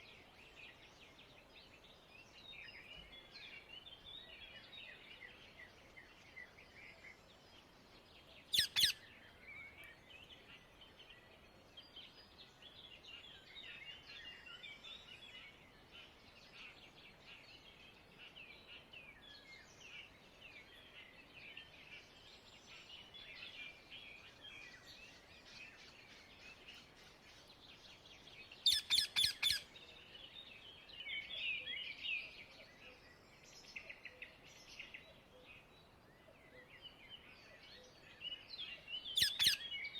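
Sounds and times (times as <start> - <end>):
bird chatter: 8.6 - 9.0, 28.6 - 29.6.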